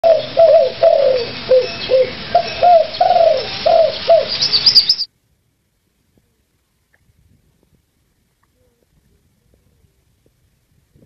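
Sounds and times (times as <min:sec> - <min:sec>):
bird hooting coos: 0:00.0 - 0:05.1
high bird chirps: 0:00.0 - 0:05.1.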